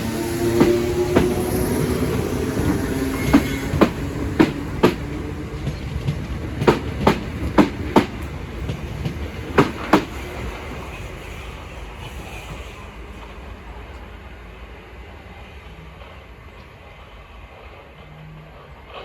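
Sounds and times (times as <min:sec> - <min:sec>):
train wheels clicking over rail joints: 0:00.0 - 0:14.1
train rumble: 0:00.0 - 0:19.0.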